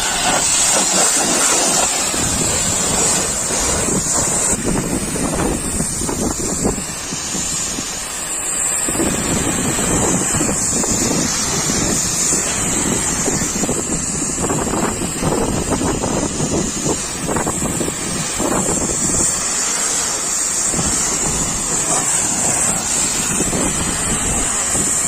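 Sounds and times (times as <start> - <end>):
pressure washer spray hissing: 0.0 - 25.0
water spattering on metal: 0.0 - 25.0.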